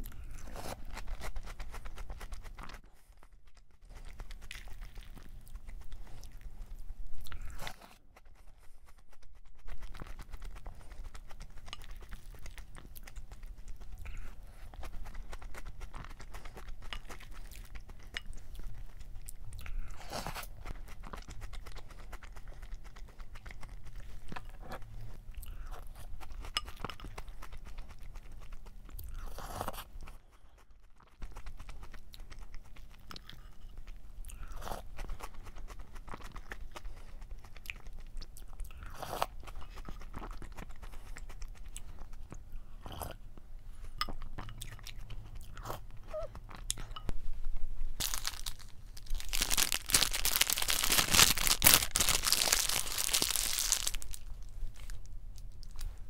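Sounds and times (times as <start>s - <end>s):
chewing crunchy cereal: 0.0s - 47.2s, 48.0s - 56.0s
paper wrapper crinkling: 48.0s - 55.0s.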